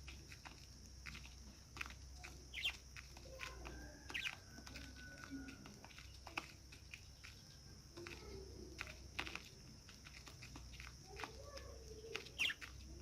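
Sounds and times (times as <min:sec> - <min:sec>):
budgerigars chirping: 0:02.4 - 0:03.2, 0:04.1 - 0:04.4, 0:12.1 - 0:12.9.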